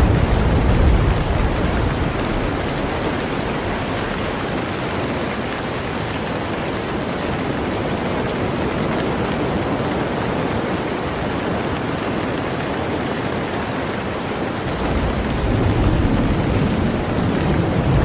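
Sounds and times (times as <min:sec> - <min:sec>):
low rumble: 0:00.0 - 0:04.6
heavy rain on a boat: 0:00.0 - 0:18.0.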